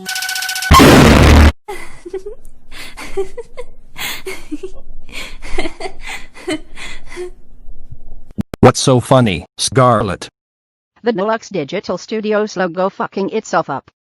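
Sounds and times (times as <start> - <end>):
woman laughing: 1.7 - 7.3.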